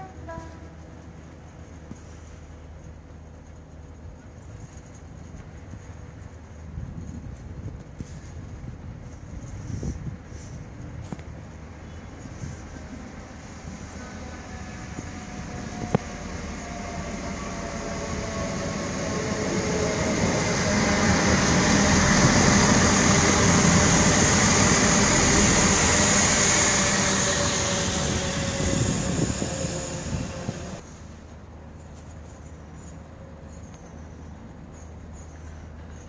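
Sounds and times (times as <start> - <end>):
passenger train passing: 0.0 - 31.8.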